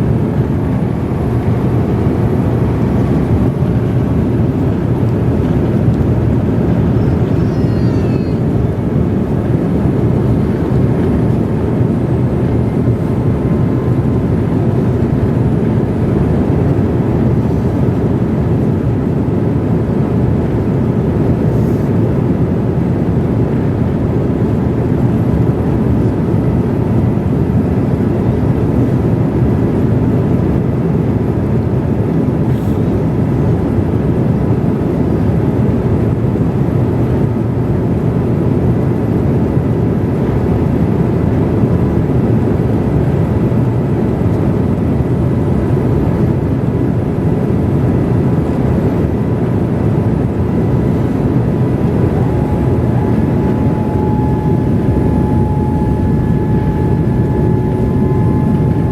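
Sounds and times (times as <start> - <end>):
airliner cabin roar: 0.0 - 58.9
faint steady tone: 52.1 - 58.9.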